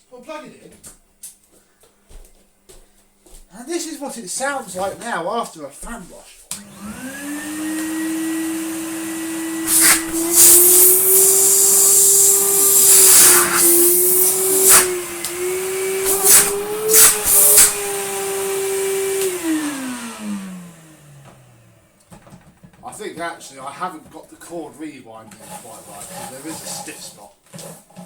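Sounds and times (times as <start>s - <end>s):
vacuum cleaner motor whining: 6.6s - 22.8s.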